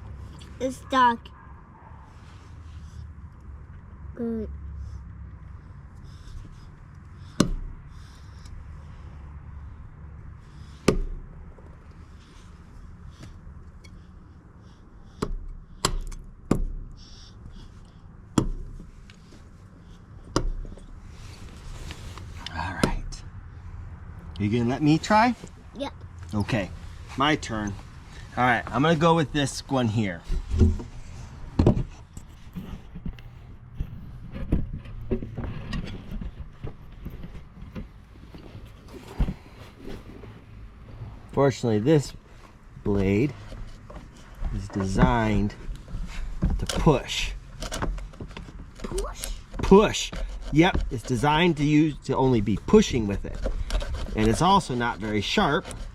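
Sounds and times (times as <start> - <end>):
saw scraping wood: 42.9 - 55.9.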